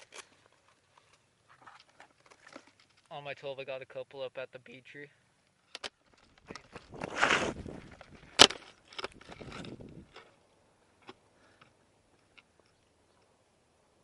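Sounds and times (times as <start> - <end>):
scuffing noise: 6.8 - 8.0.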